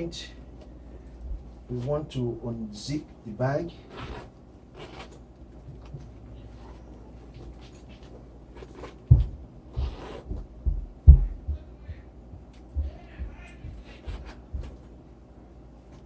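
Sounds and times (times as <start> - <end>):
dull knocks on a handbag: 9.1 - 11.6.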